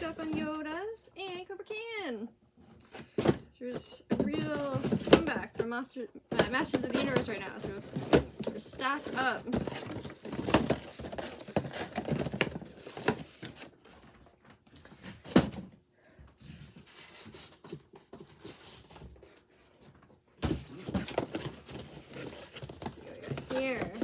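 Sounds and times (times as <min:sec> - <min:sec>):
packaging knocks and rustling: 0:04.1 - 0:05.7, 0:06.3 - 0:15.8, 0:20.4 - 0:24.0.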